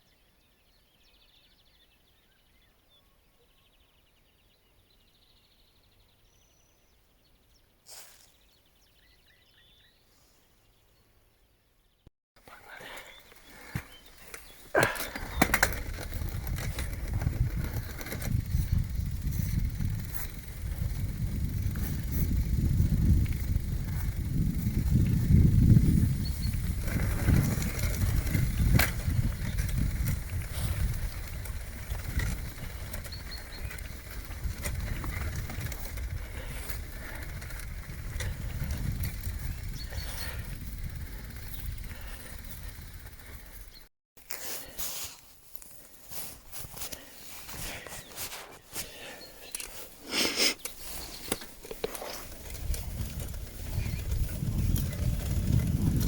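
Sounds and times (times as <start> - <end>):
bike rattles and clicks: 12.4 - 44.7, 45.5 - 56.0
bicycle tyres on road: 12.4 - 56.0
wind rumble on microphone: 13.5 - 43.9, 50.9 - 56.0
clatter and sharp clicks: 14.3 - 25.3, 50.6 - 56.0.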